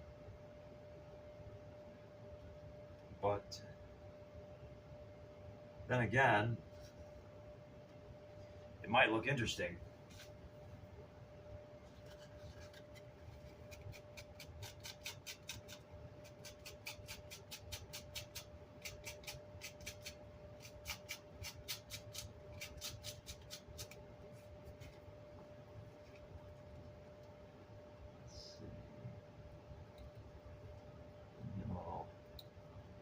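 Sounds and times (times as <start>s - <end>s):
scratching strokes on cloth: 10.0s - 10.4s, 11.8s - 25.1s.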